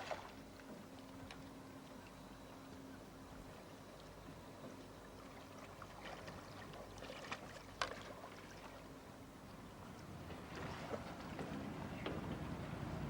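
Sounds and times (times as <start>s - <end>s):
water lapping and splashing: 0.0s - 2.2s, 3.0s - 13.0s.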